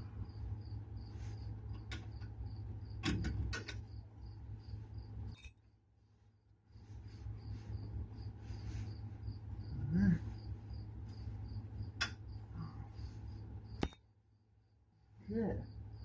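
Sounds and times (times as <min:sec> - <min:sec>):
crickets chirping: 0:00.0 - 0:16.0
hand tools clinking on metal: 0:03.0 - 0:03.9, 0:13.8 - 0:14.1.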